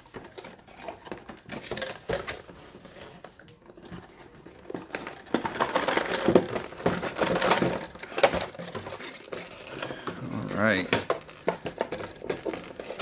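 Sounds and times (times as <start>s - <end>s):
contents rustling and tapping: 0.0s - 13.0s.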